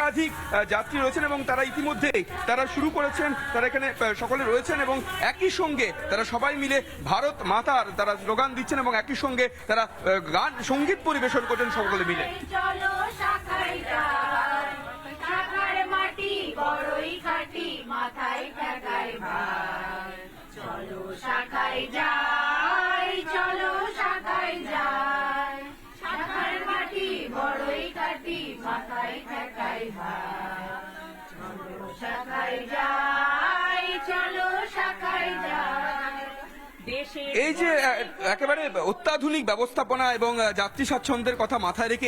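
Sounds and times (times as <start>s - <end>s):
group singing in chorus: 0.0s - 39.2s.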